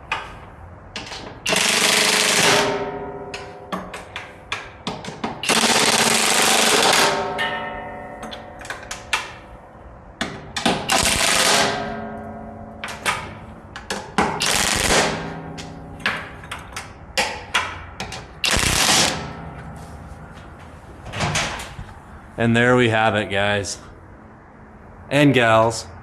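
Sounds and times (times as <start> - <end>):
impact wrench hammering: 1.0 - 9.5, 10.2 - 19.6
metal clinks and knocks: 7.1 - 9.6.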